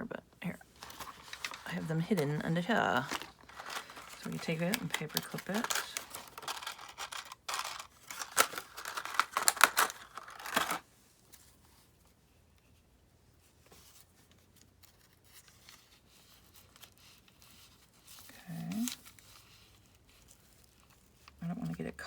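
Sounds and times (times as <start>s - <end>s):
paper rustling and crinkling: 0.6s - 11.6s, 13.6s - 21.4s
paper clip clicking and scraping: 3.0s - 10.8s.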